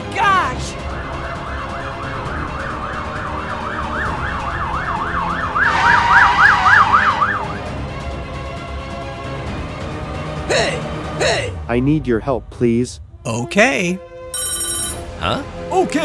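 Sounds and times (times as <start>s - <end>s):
background music: 0.0s - 16.0s
siren yelping: 0.2s - 7.7s.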